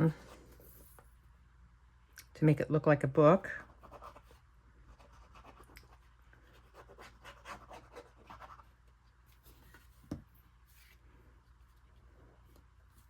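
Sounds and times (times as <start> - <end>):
scratching and rubbing of cardstock: 6.4 - 11.0.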